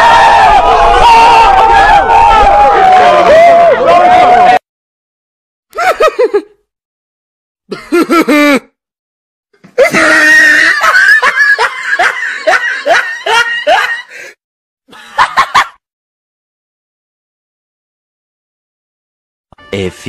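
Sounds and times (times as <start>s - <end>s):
person laughing: 5.8s - 6.6s, 7.7s - 8.8s, 9.8s - 14.2s.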